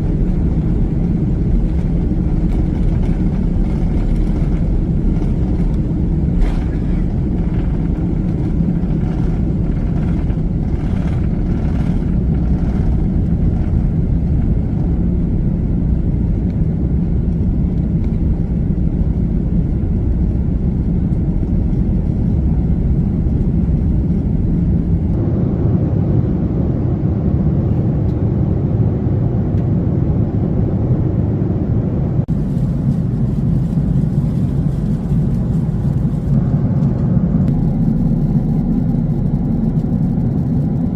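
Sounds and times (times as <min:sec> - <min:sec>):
jet engine cabin rumble: 0:00.0 - 0:40.9.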